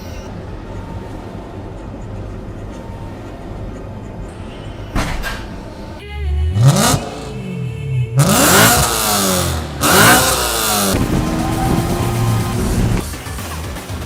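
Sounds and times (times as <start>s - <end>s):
car engine revving: 6.4s - 13.4s.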